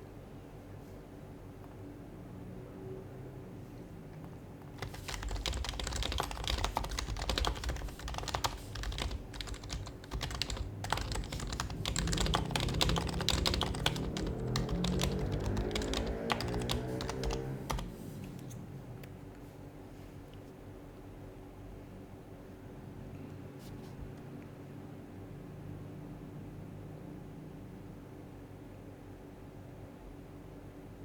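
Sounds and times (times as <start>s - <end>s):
rapid keyboard typing: 4.6s - 18.1s.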